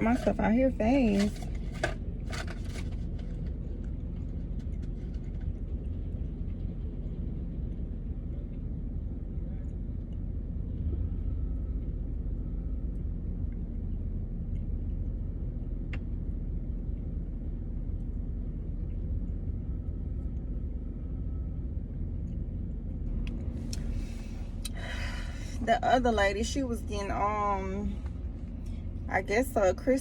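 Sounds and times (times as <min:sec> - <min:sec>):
car idling: 0:00.0 - 0:07.0, 0:23.0 - 0:30.0.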